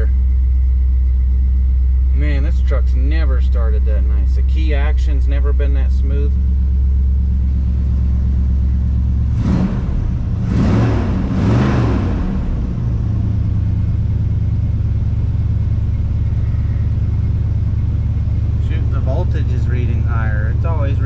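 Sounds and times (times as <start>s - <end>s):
truck engine revving and idling: 0.0s - 21.0s.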